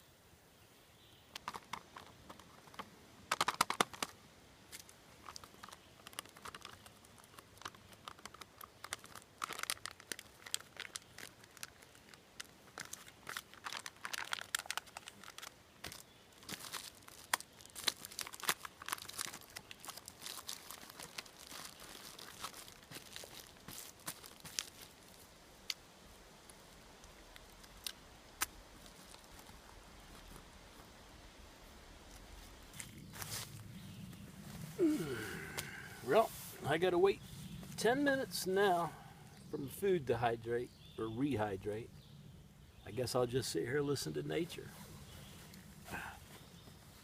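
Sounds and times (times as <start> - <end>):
foil pouch crinkling: 4.7 - 25.8, 26.4 - 30.4.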